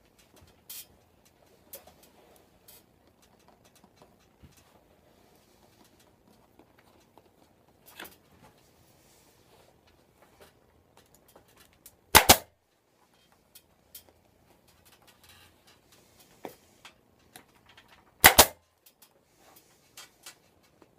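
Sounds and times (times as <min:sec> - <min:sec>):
staple gun snapping: 0:12.2 - 0:12.4, 0:18.2 - 0:18.6.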